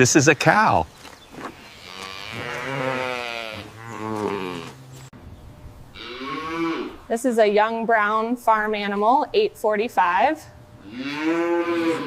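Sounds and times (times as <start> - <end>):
farm animal calling: 1.3 - 5.1, 6.0 - 7.2, 10.8 - 12.0.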